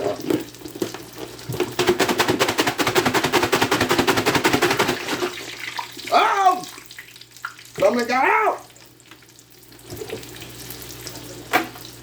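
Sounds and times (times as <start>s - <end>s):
bag of snacks rattling: 1.8s - 5.2s.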